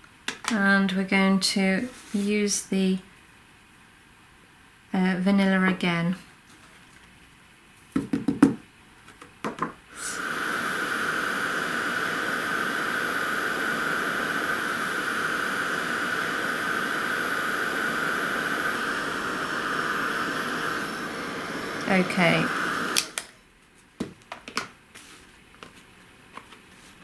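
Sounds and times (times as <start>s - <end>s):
heat gun blowing with whine: 9.9s - 23.4s.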